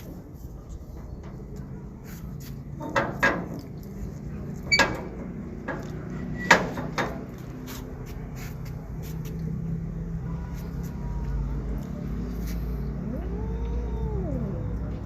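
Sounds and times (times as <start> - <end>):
sharp knocks and clatters: 0.0 - 8.0.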